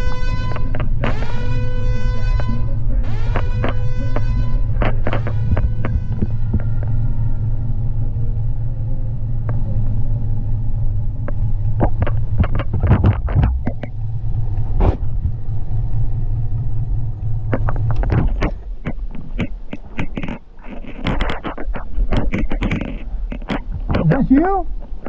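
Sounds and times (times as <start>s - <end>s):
sharp crack: 0.0s - 6.9s
moving vehicle rumble: 0.0s - 25.0s
sharp knocks and clatters: 2.4s - 7.0s, 11.3s - 14.0s, 17.5s - 24.2s.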